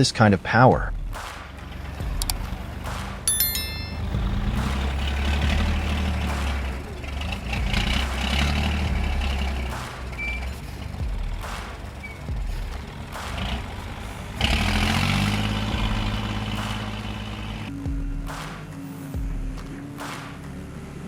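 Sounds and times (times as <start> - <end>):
diesel engine drone: 4.0 - 17.9, 18.6 - 21.0.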